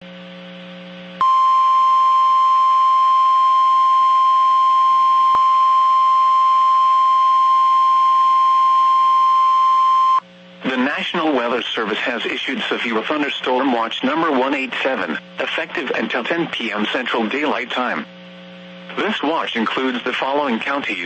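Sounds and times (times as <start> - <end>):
steady alarm beep: 1.2 - 10.2
radio low hum: 10.6 - 18.2, 18.8 - 21.0.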